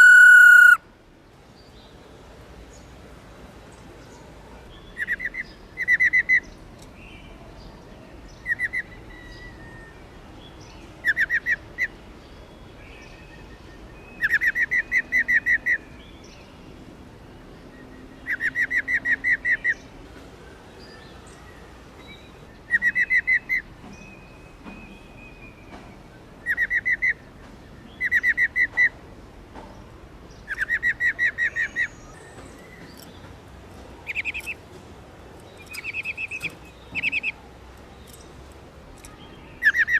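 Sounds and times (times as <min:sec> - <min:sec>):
bird rolling trill: 0:00.0 - 0:00.8.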